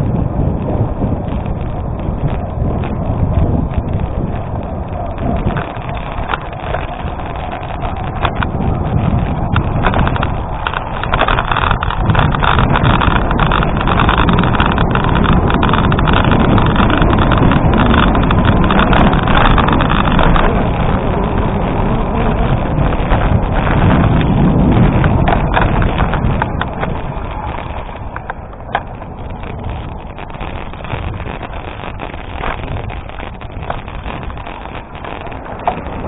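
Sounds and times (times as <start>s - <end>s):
bike rattling: 0.0s - 36.0s
wind on microphone: 0.0s - 36.0s
tyres crunching on gravel: 5.2s - 36.0s.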